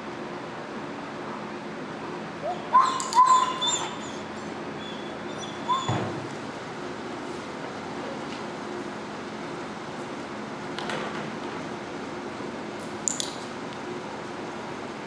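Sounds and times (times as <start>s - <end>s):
dog whining in high yelps: 2.4s - 6.2s.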